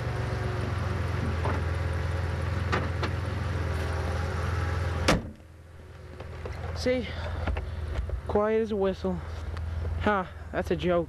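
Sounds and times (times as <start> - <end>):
car engine idling: 0.0 - 11.0
faint engine ticks: 9.4 - 10.1.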